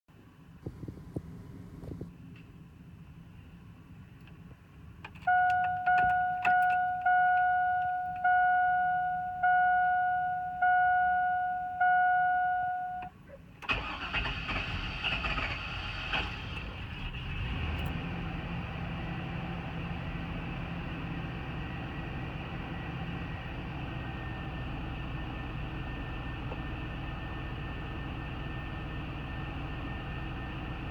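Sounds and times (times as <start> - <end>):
car engine cranking and idling: 0.2 - 30.9
dashboard warning chime: 5.2 - 13.2.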